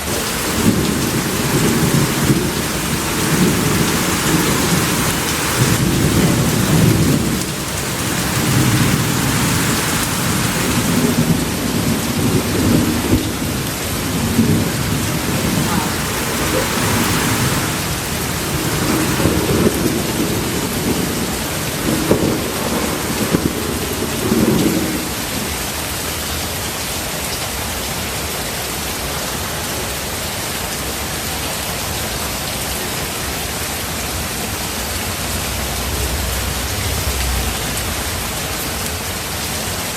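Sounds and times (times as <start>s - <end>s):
thunder rumbling: 0.0s - 25.5s, 35.0s - 39.9s
heavy rain: 0.0s - 39.9s.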